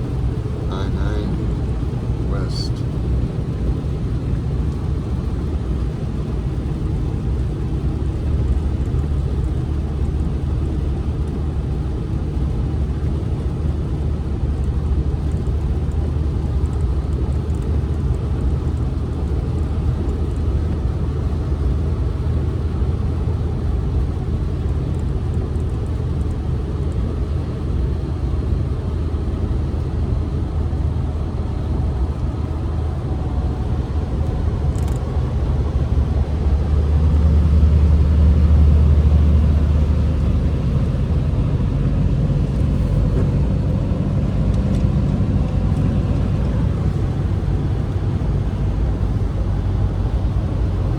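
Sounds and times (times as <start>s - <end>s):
car cabin road noise: 0.0s - 50.9s.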